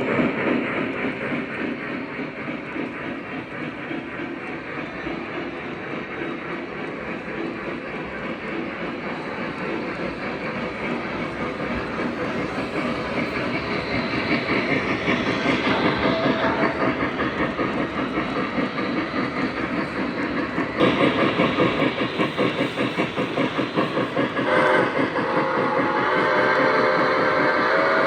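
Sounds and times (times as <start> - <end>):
model train rumbling: 0.0 - 28.0.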